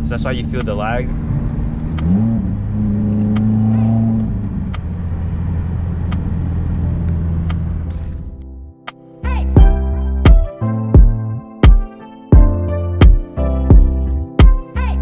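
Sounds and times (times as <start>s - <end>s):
car engine droning: 0.0s - 8.5s.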